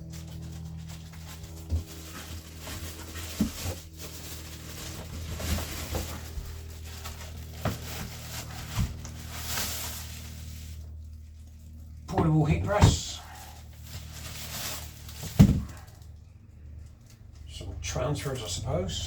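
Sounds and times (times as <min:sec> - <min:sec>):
packaging rustling: 0:00.0 - 0:11.7, 0:12.9 - 0:16.2
steady low hum: 0:00.0 - 0:19.0
knocks and thumps of items: 0:15.2 - 0:15.8.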